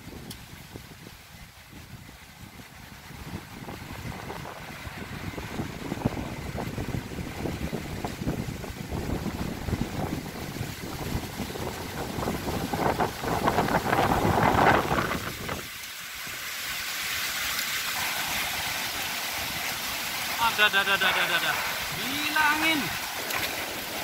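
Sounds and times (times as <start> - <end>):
wind buffeting microphone: 0.0 - 15.8
rushing hiss of wind: 0.0 - 24.0.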